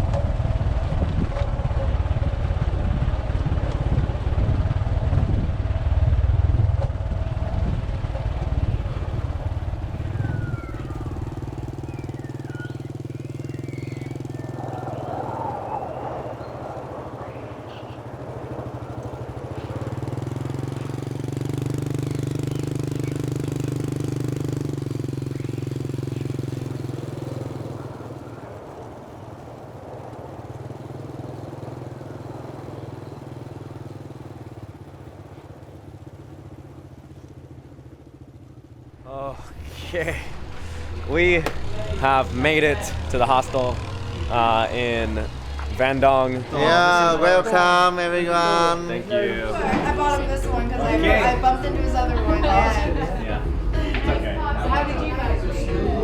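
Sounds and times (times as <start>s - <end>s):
wind rumble on microphone: 0.0s - 12.0s
motorbike engine drone: 0.0s - 56.0s.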